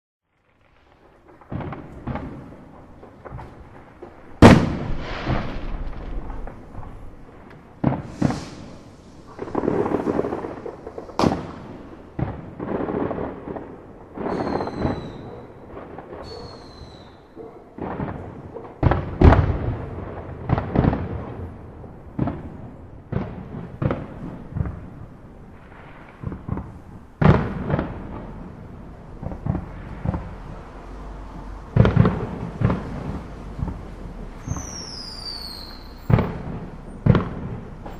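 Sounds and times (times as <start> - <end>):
fireworks bangs: 0.3 - 37.9
fireworks whistles sliding down: 8.0 - 9.3, 14.2 - 15.3, 16.2 - 17.2, 34.4 - 37.0.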